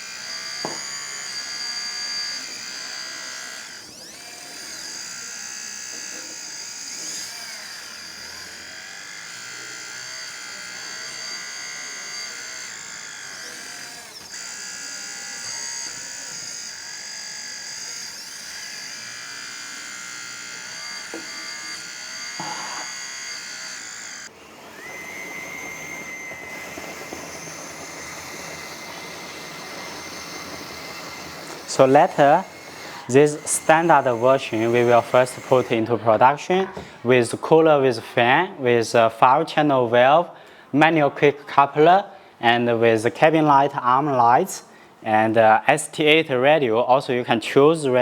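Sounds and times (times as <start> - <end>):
electric hydraulic pump whining: 0.0 - 38.0.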